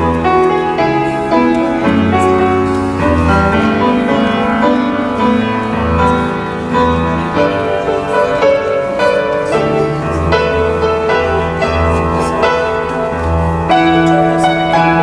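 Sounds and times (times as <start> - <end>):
piano chords with low bass line: 0.0 - 15.0.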